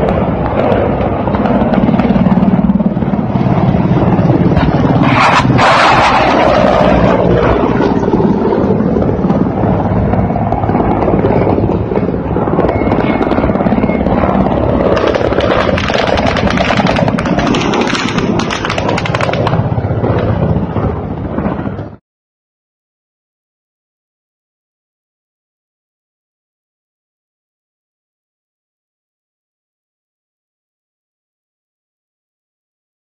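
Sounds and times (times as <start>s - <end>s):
helicopter rotors and engines: 0.0s - 22.0s.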